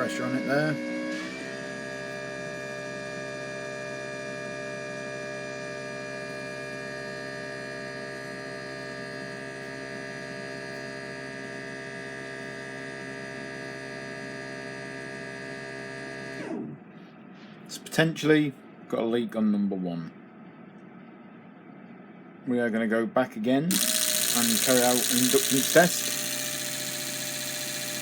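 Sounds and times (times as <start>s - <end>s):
pump humming: 23.7s - 28.0s.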